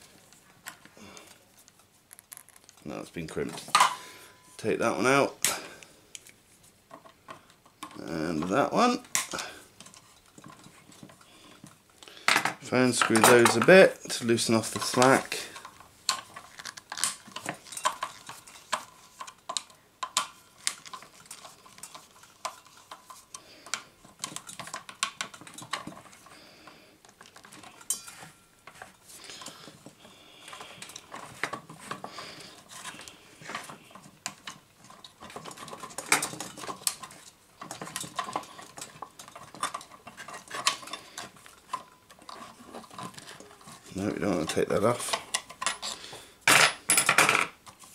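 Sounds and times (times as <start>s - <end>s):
metal parts clinking and scraping: 12.3s - 26.3s, 27.2s - 29.5s, 30.4s - 47.6s.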